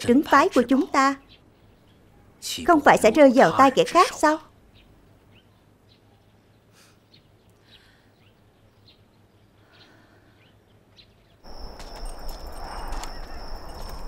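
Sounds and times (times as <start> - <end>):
faint bird chirps: 4.7 - 14.0.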